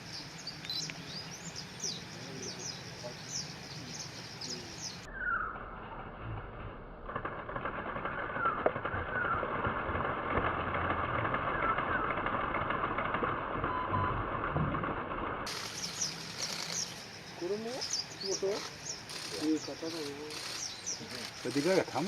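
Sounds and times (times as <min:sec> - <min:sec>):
dense outdoor hiss: 0:00.0 - 0:05.1, 0:15.4 - 0:22.0
bird chirps: 0:00.0 - 0:06.0, 0:15.5 - 0:21.8.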